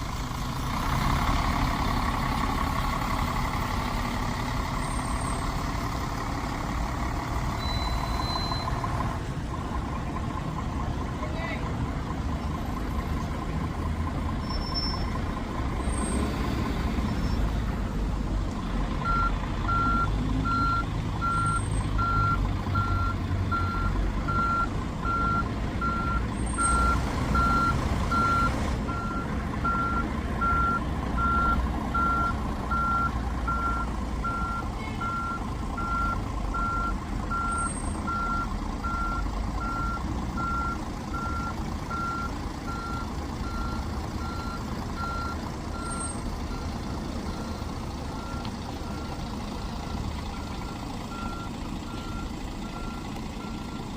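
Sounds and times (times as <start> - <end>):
low engine rumble: 0.0 - 53.9
reversing alarm beeping: 7.5 - 8.8, 19.0 - 49.2, 49.8 - 53.8.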